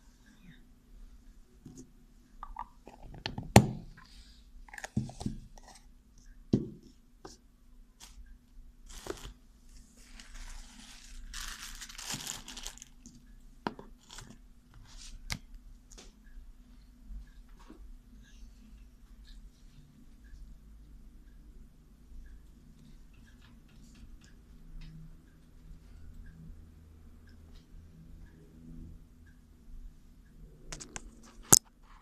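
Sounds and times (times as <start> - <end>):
crinkling and rustling: 8.9 - 13.2.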